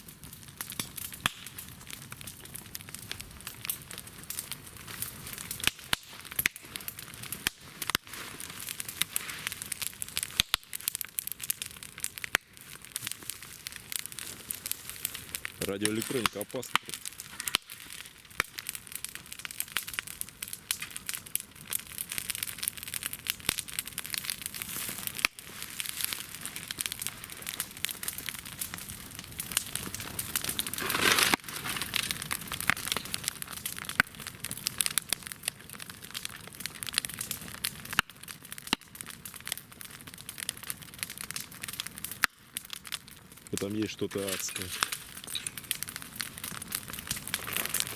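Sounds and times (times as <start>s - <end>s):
fire crackling and popping: 0.0s - 47.9s
burning hiss: 4.3s - 11.0s, 12.3s - 19.9s, 24.1s - 33.3s, 43.4s - 47.9s.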